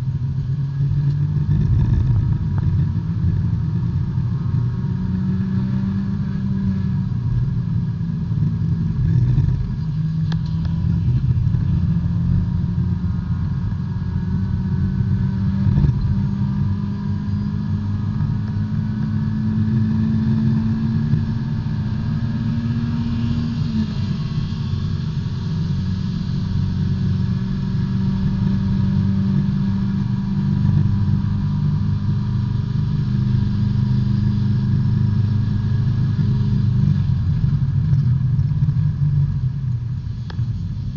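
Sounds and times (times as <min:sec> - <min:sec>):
race car engine running hard: 0:00.0 - 0:40.9.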